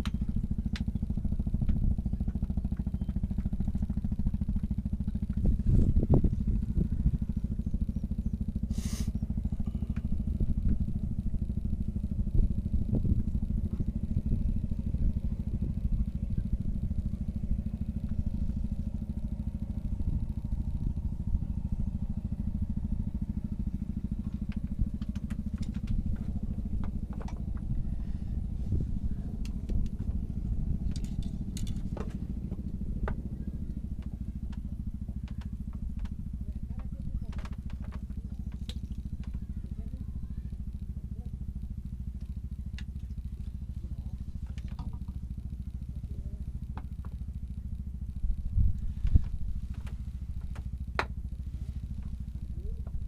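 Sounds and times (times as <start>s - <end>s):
small engine rumbling: 0.0s - 53.0s
short hiss: 8.7s - 9.2s.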